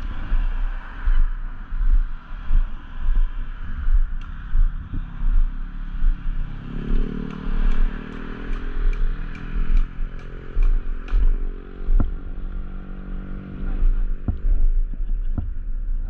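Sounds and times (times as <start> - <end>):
motorcycle engine running: 0.0 - 16.0
wind buffeting microphone: 0.0 - 16.0
regular light ticking: 5.4 - 12.6.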